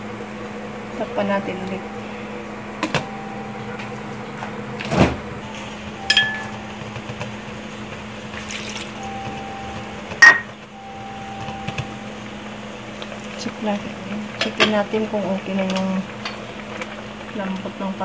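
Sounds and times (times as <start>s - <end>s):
steady low hum: 0.0s - 18.0s
ringing metal ping: 10.2s - 10.5s.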